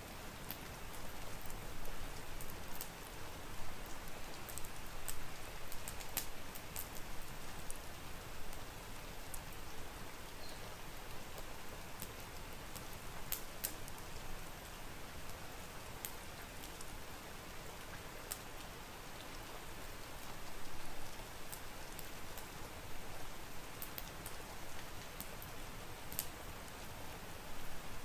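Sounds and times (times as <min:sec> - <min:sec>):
steady rain: 0:00.0 - 0:28.0
raindrops ticking: 0:03.8 - 0:09.7.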